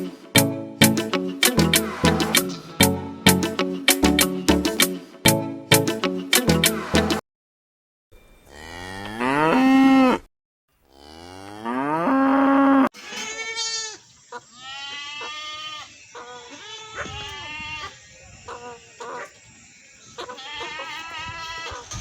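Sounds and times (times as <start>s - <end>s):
cow mooing: 8.5s - 10.3s, 10.9s - 12.9s
short high bleating calls: 13.0s - 18.0s, 20.2s - 21.8s.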